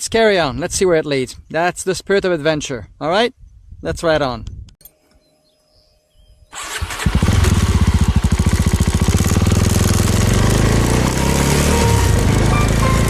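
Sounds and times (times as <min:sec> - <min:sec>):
motorcycle engine starting and running: 0:06.5 - 0:13.0.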